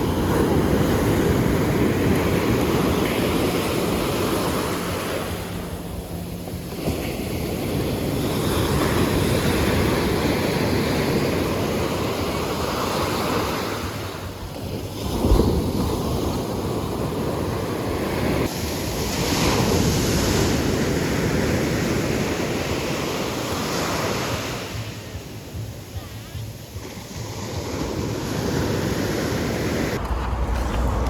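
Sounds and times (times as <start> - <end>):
sea waves breaking on beach: 0.0 - 31.0
wind rumbling on microphone: 0.0 - 31.0.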